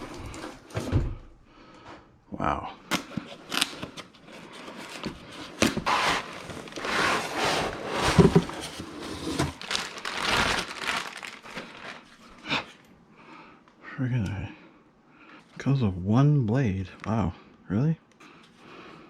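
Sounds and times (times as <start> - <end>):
packaging crinkling and rustling: 2.9 - 12.4.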